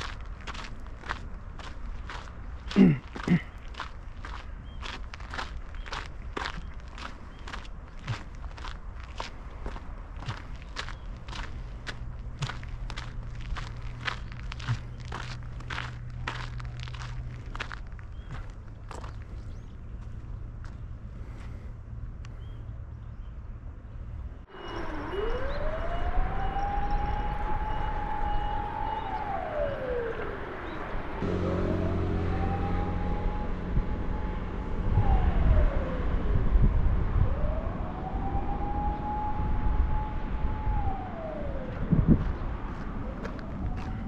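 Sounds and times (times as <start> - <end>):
siren wailing: 24.5 - 44.0.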